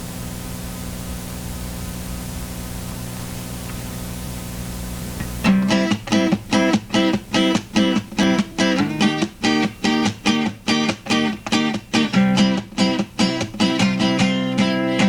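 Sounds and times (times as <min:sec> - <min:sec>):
droning hum with hiss: 0:00.0 - 0:15.0
guitar strumming chords: 0:05.0 - 0:15.0.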